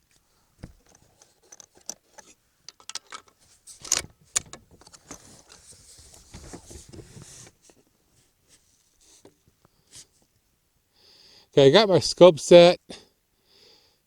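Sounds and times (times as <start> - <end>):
soft rustling: 3.4 - 10.5.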